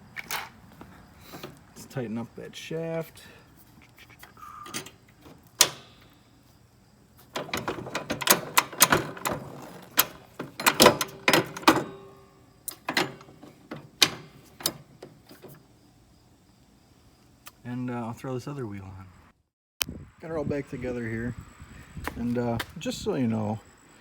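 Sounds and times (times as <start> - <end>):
hand tools clicking and knocking: 4.2 - 6.2, 7.2 - 15.7.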